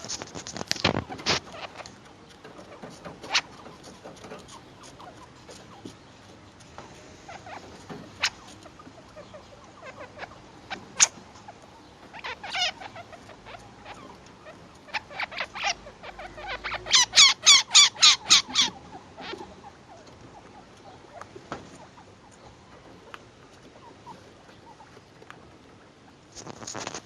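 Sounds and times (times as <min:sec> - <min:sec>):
loud wavering chinchilla calls: 0:00.0 - 0:02.0, 0:02.6 - 0:06.0, 0:07.0 - 0:22.2
baby chinchillas squeaking: 0:00.0 - 0:22.8.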